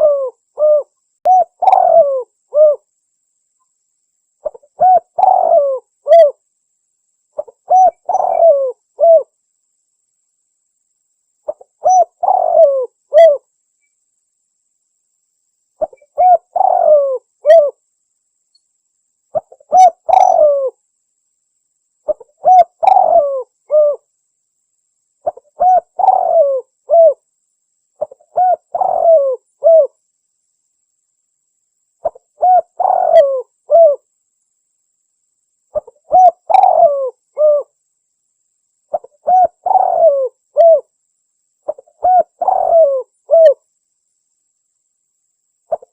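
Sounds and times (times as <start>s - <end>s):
dove cooing: 0.0s - 2.9s, 4.4s - 6.4s, 7.4s - 9.3s, 11.5s - 13.5s, 15.8s - 17.8s, 19.3s - 20.8s, 22.1s - 24.1s, 25.2s - 27.2s, 28.0s - 30.0s, 32.0s - 34.0s, 35.7s - 37.8s, 38.9s - 40.9s, 41.7s - 43.6s.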